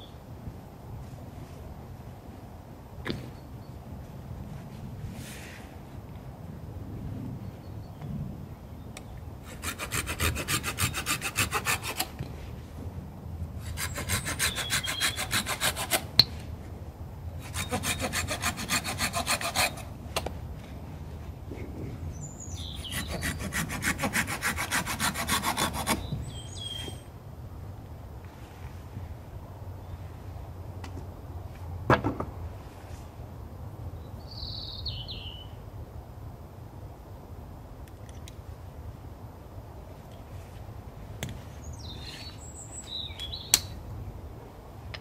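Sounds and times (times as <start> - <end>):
hand saw cutting wood: 9.4 - 12.2, 13.6 - 16.2, 17.4 - 19.9, 22.6 - 26.1
bird chirping: 22.1 - 23.3, 26.0 - 27.1, 34.2 - 35.6, 41.7 - 43.6.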